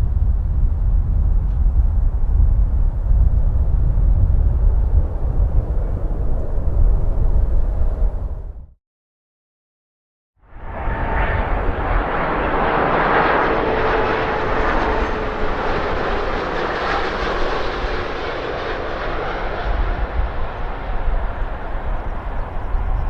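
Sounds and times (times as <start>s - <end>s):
deep rumble: 0.0s - 8.8s
jet airliner engines rushing: 1.9s - 8.6s, 10.5s - 23.0s.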